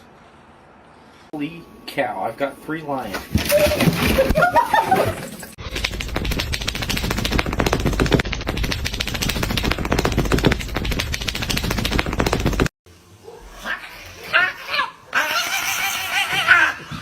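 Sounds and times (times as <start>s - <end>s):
fast rattling clatter: 5.6s - 12.7s.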